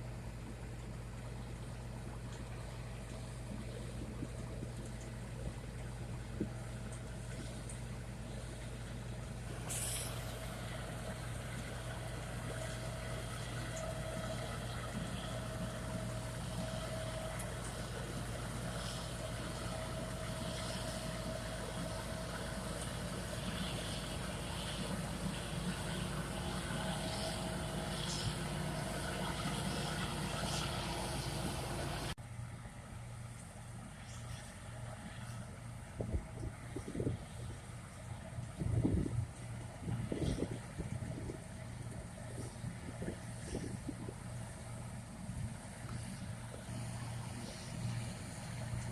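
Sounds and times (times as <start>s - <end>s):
diesel tractor engine running: 0.0s - 48.9s
short hiss: 9.6s - 10.6s.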